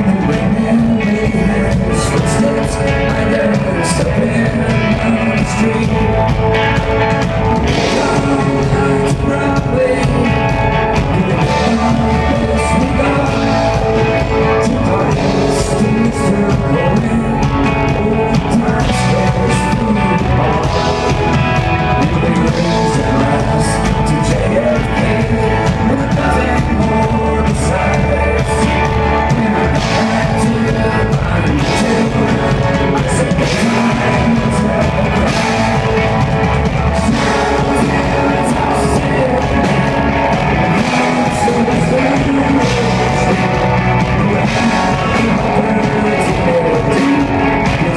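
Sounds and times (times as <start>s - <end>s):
live rock band playing: 0.0s - 47.9s.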